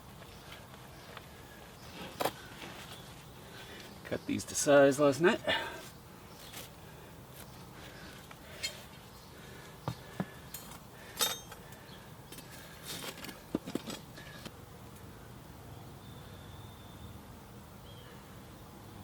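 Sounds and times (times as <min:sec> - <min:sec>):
metal rebar clinking: 0:10.5 - 0:11.7.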